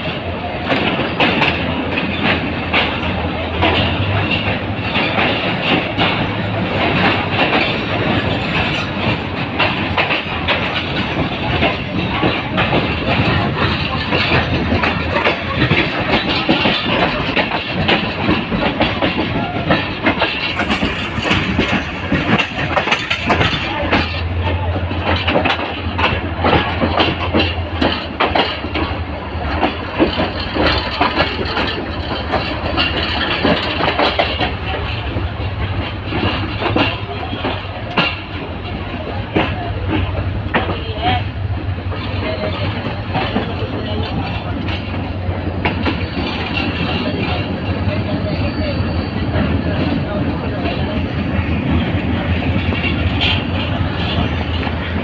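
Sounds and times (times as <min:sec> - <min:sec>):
train running noise: 0:00.0 - 0:55.0
train wheels clattering over rails: 0:00.0 - 0:55.0.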